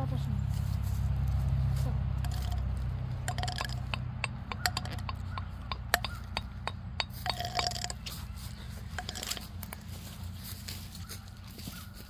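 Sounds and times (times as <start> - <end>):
small hard objects clicking: 2.2 - 8.2, 8.9 - 9.9.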